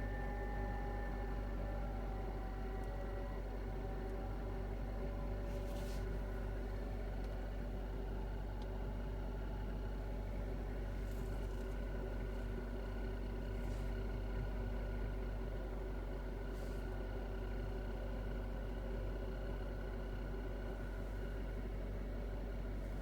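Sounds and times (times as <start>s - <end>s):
heater blower fan whistling: 0.0s - 6.9s.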